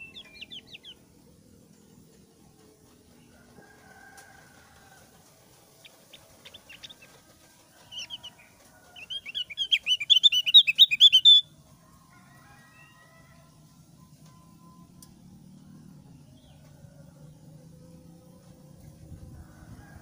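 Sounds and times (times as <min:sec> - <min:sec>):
bird singing high chirps: 0:00.0 - 0:01.0, 0:07.8 - 0:08.4, 0:09.0 - 0:11.5.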